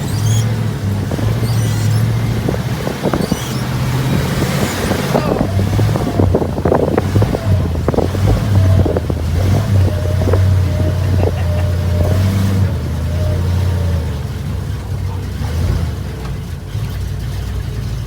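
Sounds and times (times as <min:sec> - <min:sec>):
wind on microphone: 0:00.0 - 0:13.6
bus engine running: 0:00.0 - 0:18.0.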